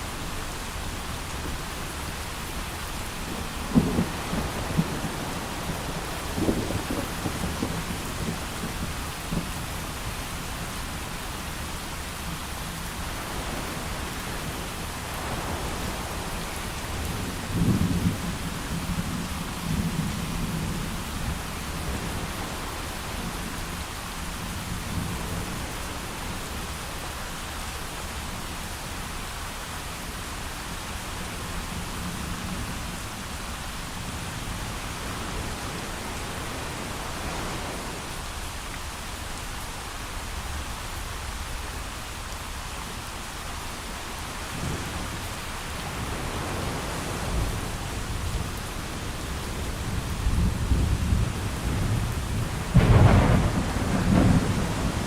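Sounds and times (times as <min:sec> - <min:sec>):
heavy rain: 0:00.0 - 0:55.0
rolling thunder: 0:03.4 - 0:09.6, 0:45.8 - 0:55.0.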